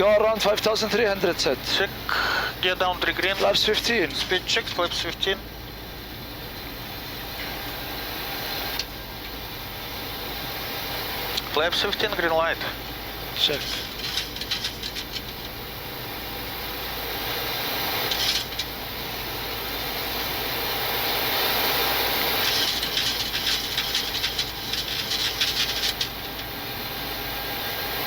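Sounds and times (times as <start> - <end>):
rapid clicks: 3.0 - 5.4, 11.4 - 15.6, 17.3 - 19.3, 20.2 - 26.6.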